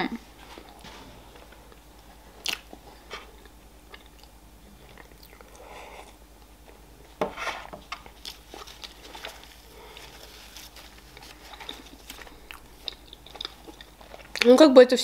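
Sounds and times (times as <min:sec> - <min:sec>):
chewing cake: 0:02.4 - 0:06.2, 0:08.0 - 0:14.6.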